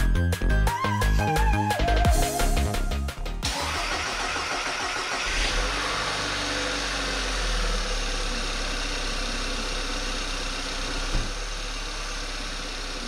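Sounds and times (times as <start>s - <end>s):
car engine idling: 3.4s - 13.0s.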